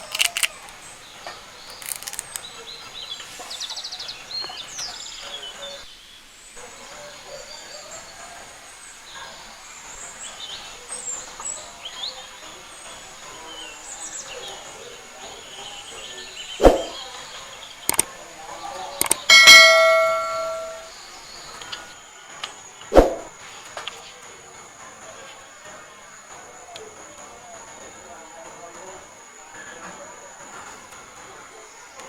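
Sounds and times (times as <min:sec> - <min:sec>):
birds chirping: 0:00.0 - 0:21.8
insect droning: 0:00.0 - 0:23.6
metal cookware clanging: 0:19.1 - 0:20.9.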